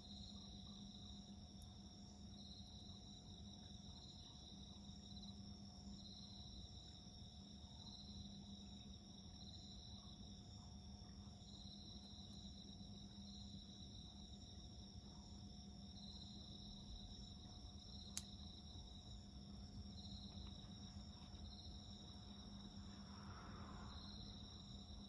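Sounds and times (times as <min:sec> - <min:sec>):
crickets trilling: 0:00.0 - 0:25.0.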